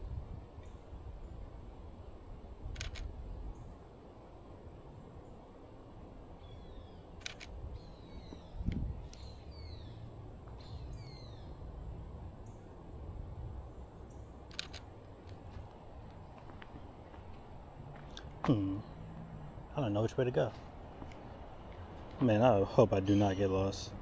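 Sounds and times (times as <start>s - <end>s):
camera shutter double click: 2.8s - 3.1s, 7.2s - 7.5s, 14.5s - 14.9s.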